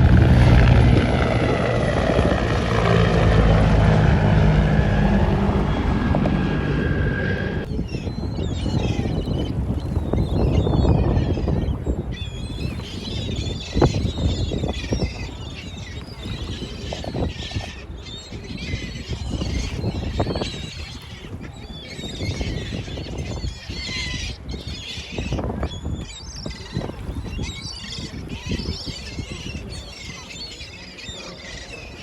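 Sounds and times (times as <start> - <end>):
low rumble: 0.0 - 7.7
flock of birds chirping: 0.0 - 32.0.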